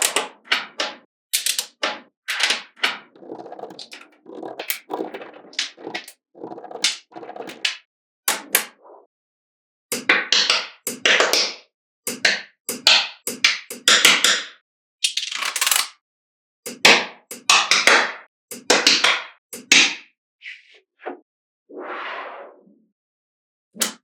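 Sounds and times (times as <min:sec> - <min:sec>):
magnetic balls rattling: 0:02.8 - 0:07.8.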